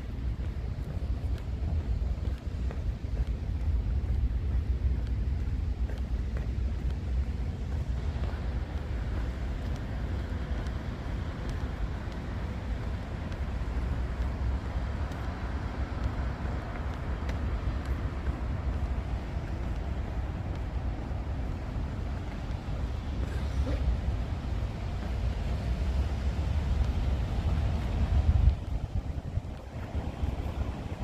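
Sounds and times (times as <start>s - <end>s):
faint ticks: 0.0s - 30.7s
street traffic rumble: 0.0s - 31.0s
rain hiss: 6.5s - 31.0s.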